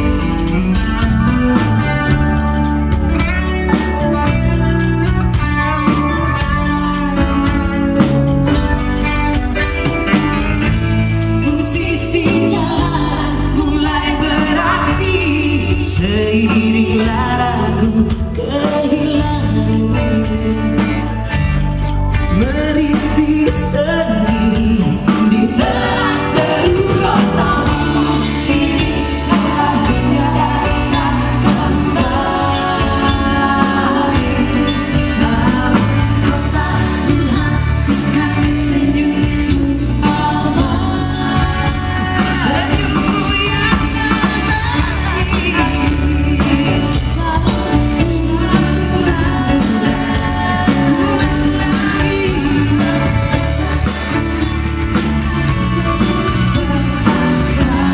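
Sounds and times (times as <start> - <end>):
live band playing pop song: 0.0 - 57.9
person singing: 10.1 - 21.4, 22.3 - 57.9.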